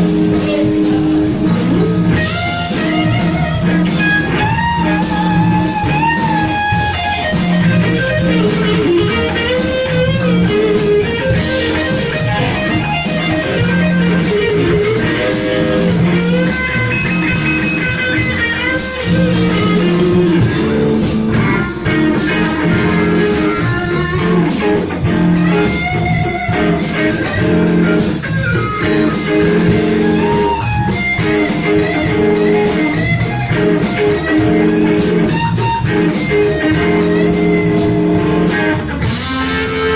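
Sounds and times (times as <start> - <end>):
blues-rock band playing: 0.0 - 39.9
electric guitar bending notes: 0.0 - 39.9.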